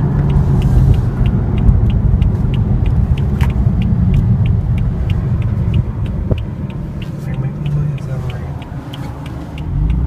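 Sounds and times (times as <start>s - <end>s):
car engine low rumble: 0.0s - 10.0s
turn signal ticking: 0.0s - 10.0s.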